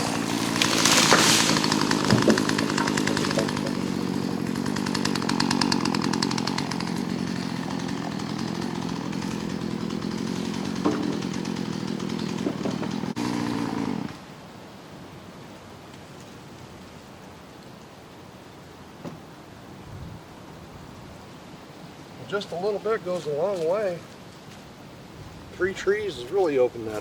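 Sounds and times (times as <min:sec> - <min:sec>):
chainsaw running at high revs: 0:00.0 - 0:14.2.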